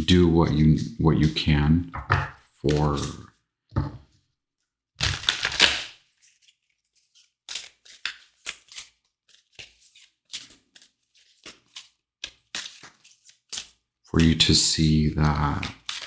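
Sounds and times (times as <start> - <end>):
cards clicking and snapping: 5.0 - 5.9, 7.5 - 14.6, 15.2 - 16.0.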